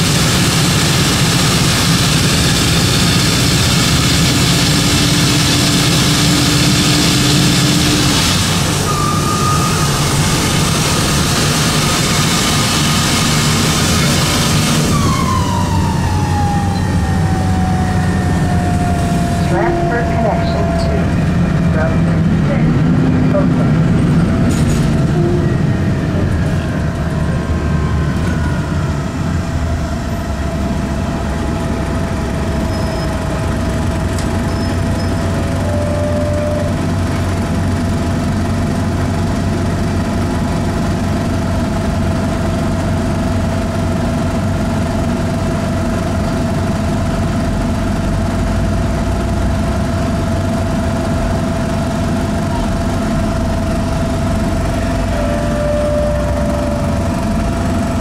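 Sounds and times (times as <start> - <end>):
diesel engine running: 0.0 - 58.0
constant high tone: 14.8 - 23.8, 25.0 - 33.7, 52.4 - 58.0.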